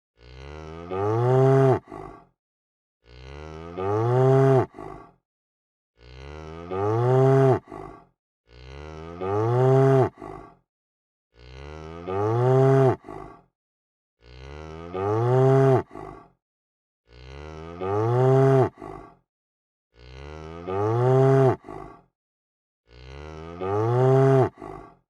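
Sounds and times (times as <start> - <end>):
cow mooing: 0.2 - 2.0, 3.0 - 4.8, 6.0 - 7.8, 8.5 - 10.3, 11.4 - 13.1, 14.2 - 16.0, 17.1 - 18.9, 20.0 - 21.7, 22.9 - 24.6.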